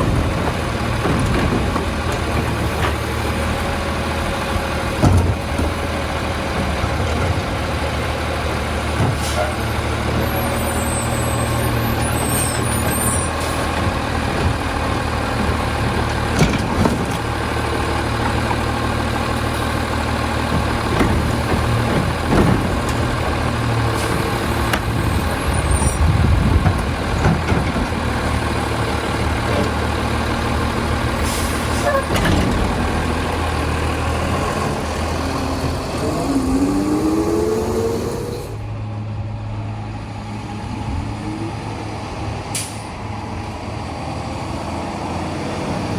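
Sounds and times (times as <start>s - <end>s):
garbage truck diesel engine running: 0.0s - 45.9s
sharp knocks and bangs: 4.8s - 7.7s
rising whine: 35.8s - 42.0s.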